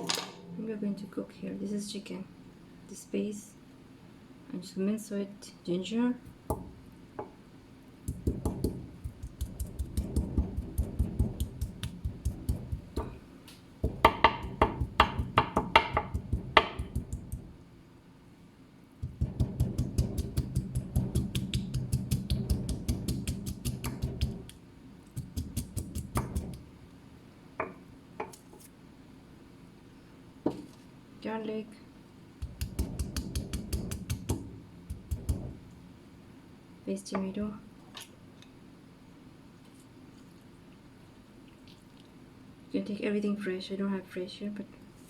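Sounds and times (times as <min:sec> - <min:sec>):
knife chopping on cutting board: 0:19.0 - 0:24.5, 0:25.2 - 0:26.6, 0:32.4 - 0:35.6.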